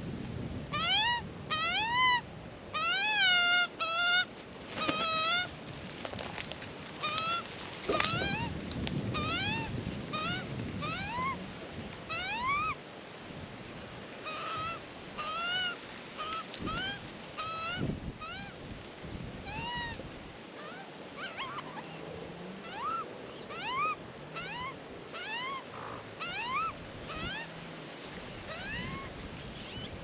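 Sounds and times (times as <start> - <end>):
magpies calling: 20.6 - 27.5, 28.5 - 29.9.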